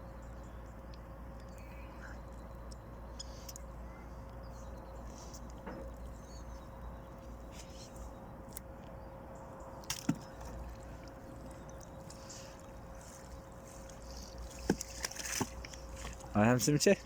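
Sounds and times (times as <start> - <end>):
water dripping off fishing net: 9.8 - 16.3.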